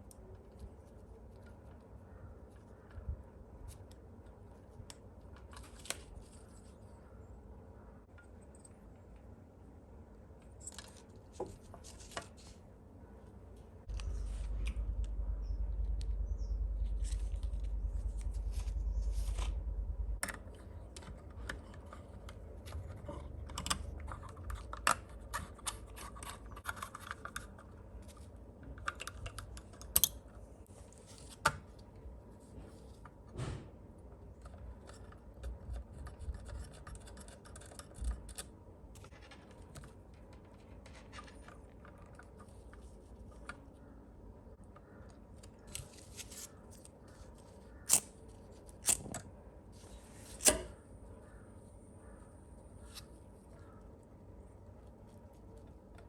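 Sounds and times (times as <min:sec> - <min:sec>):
low rumble: 0:13.9 - 0:20.2.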